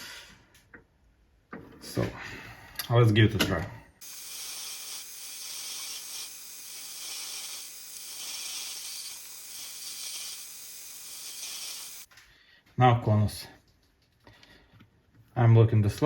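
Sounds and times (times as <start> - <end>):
lathe boring high hiss: 4.0 - 12.1.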